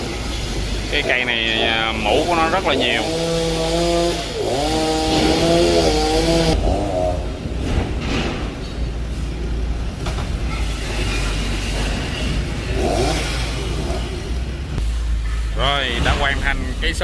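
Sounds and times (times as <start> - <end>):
chainsaw engine running: 0.0 - 7.1, 12.6 - 14.5.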